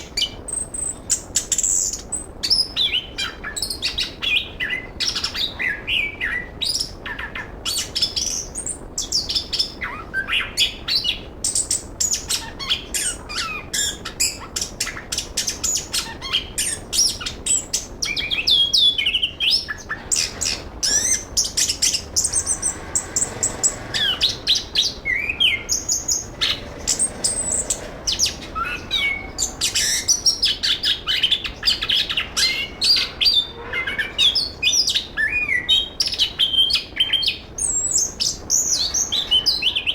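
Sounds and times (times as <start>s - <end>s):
thrush singing: 16.7s - 34.5s.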